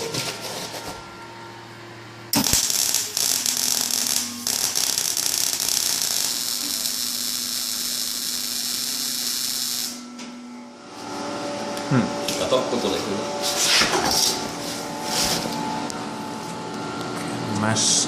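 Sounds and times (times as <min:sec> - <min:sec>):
welding arc crackling hiss: 0:02.4 - 0:10.1.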